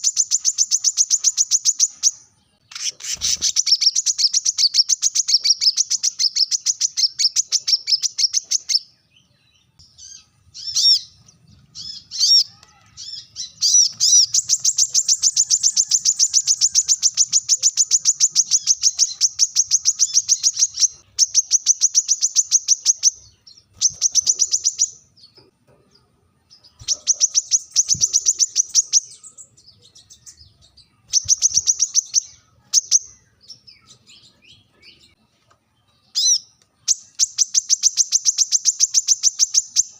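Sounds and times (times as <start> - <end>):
bird trilling high chips: 11.8 - 25.0.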